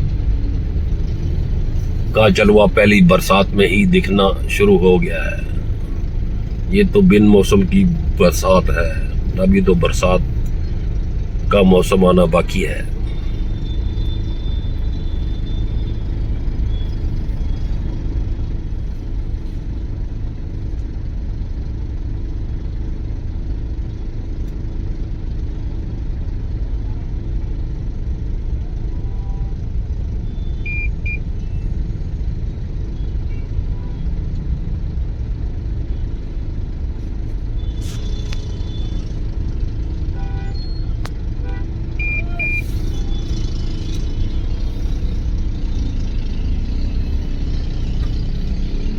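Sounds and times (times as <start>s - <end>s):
road traffic rumble: 0.0s - 48.9s
short high beeps: 42.0s - 43.4s.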